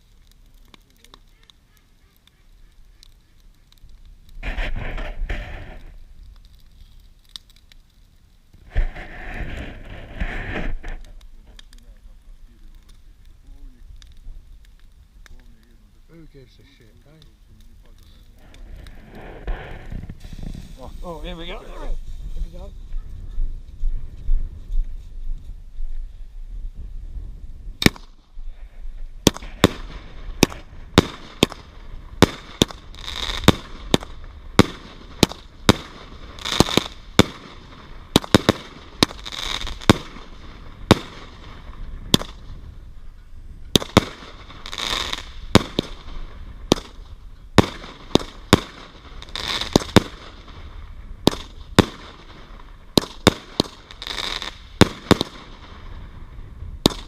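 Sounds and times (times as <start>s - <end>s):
fireworks crackling fizz: 0.0s - 57.0s
fireworks banging: 4.2s - 6.2s, 8.6s - 12.0s, 17.2s - 22.8s, 27.8s - 57.0s.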